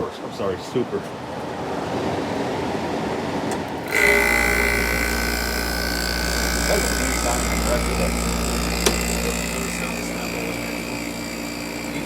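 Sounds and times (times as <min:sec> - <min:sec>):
air conditioner fan running: 0:03.8 - 0:12.0
compressor hum and whine: 0:03.8 - 0:12.0.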